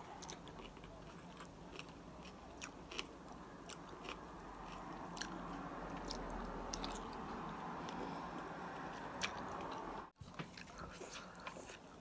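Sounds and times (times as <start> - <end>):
wet chewing with crunchy clicks: 0.1 - 8.1.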